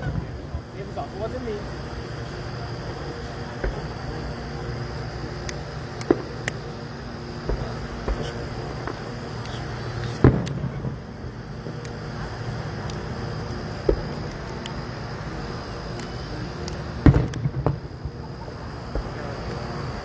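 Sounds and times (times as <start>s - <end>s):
distant fireworks bangs: 0.0s - 0.7s, 3.5s - 4.2s, 7.4s - 11.8s, 13.8s - 14.6s, 17.0s - 19.4s
steady low rumble: 0.0s - 20.0s.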